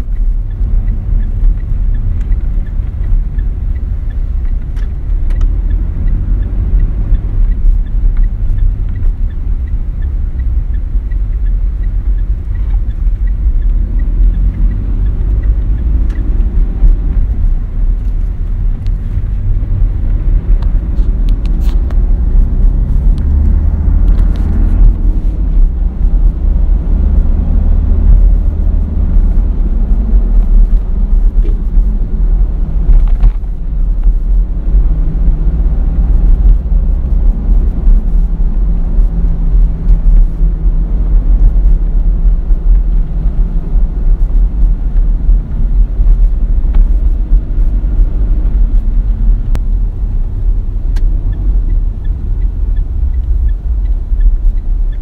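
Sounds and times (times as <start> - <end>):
diesel engine drone: 0.0 - 55.0
road noise: 0.0 - 55.0.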